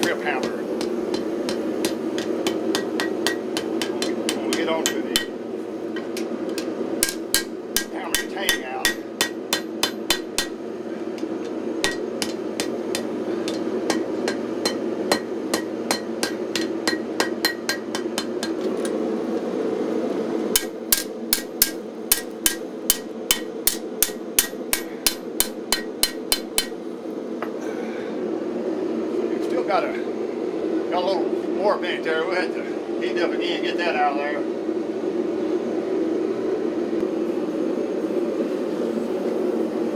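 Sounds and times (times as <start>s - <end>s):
hammer striking steel on anvil: 0.0s - 5.4s, 6.0s - 10.6s, 11.2s - 18.6s, 20.6s - 26.8s.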